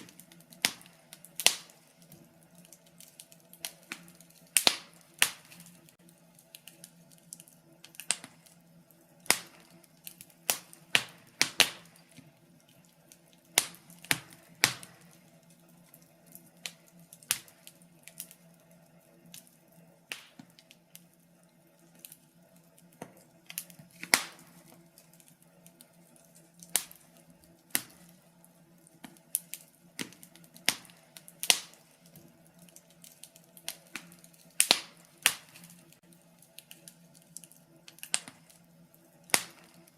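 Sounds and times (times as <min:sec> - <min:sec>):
logs popping and snapping: 0:00.0 - 0:08.4, 0:20.1 - 0:20.8, 0:23.0 - 0:25.3, 0:29.0 - 0:36.0
faint steady hum: 0:00.0 - 0:39.9.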